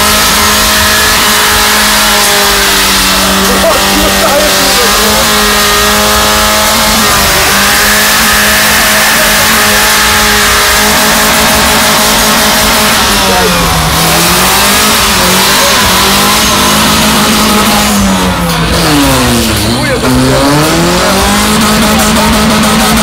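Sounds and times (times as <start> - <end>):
car engine at high revs: 0.0 - 23.0
tyres spinning: 0.0 - 23.0.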